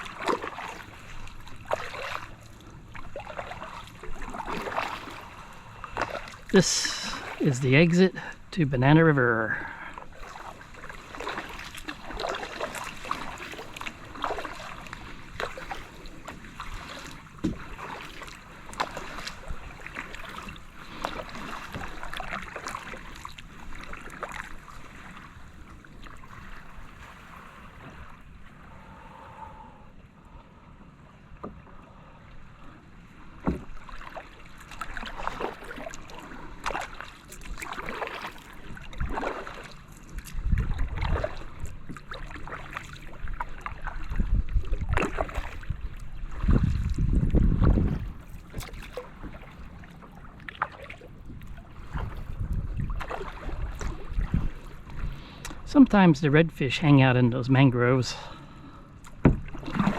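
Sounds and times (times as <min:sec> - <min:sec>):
paddle splashing in water: 0:00.0 - 0:29.6, 0:31.3 - 0:59.9.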